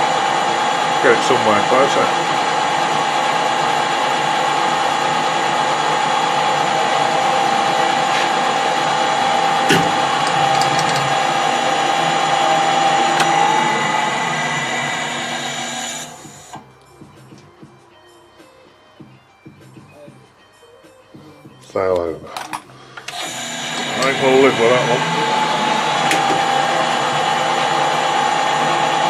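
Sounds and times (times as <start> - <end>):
metal lathe whining: 0.0 - 16.6, 23.0 - 29.0.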